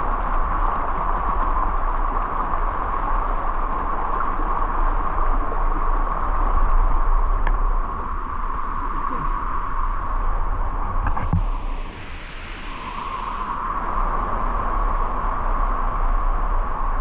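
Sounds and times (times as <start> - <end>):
rushing waterfall and river: 10.9 - 14.1.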